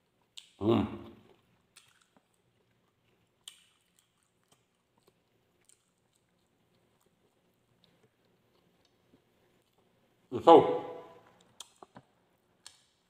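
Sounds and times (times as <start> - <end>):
soft chewing mouth clicks: 1.2 - 9.9, 11.2 - 13.0.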